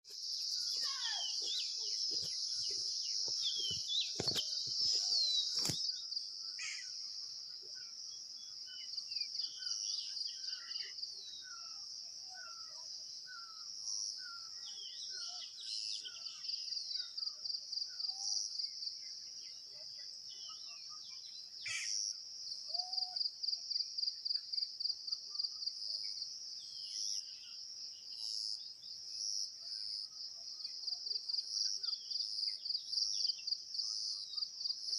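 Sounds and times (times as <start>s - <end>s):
birds chirping: 0.1s - 7.0s
insects chorus: 0.1s - 34.9s.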